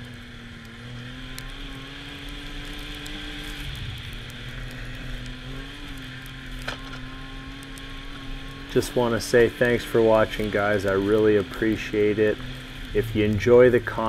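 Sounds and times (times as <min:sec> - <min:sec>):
snow noise: 0:00.0 - 0:14.0
snowmobile engine running: 0:00.0 - 0:14.0
rushing wind: 0:03.2 - 0:07.0.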